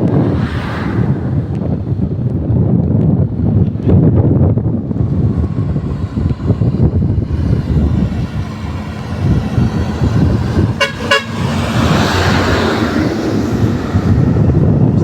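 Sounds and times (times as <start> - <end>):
steady low rumble: 0.0 - 15.0
vehicle horn toots: 10.7 - 11.6.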